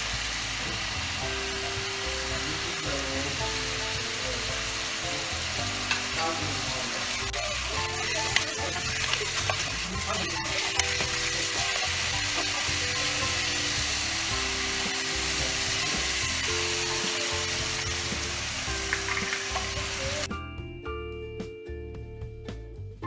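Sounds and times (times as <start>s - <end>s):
chicken sizzling in a pan: 0.0s - 20.3s
soft background music: 0.0s - 23.0s
wooden spatula stirring: 7.9s - 12.7s.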